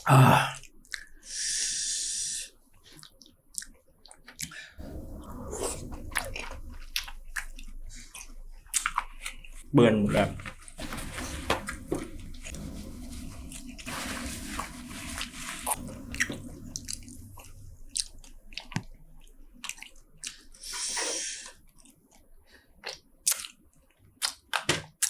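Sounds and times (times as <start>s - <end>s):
close chewing and biting: 2.9s - 4.6s, 22.8s - 25.0s
mouth smacks and clicks: 22.8s - 23.6s.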